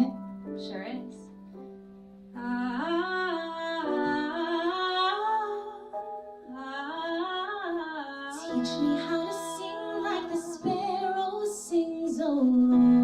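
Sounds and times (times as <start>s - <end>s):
woman singing wordless melody: 2.4s - 13.0s.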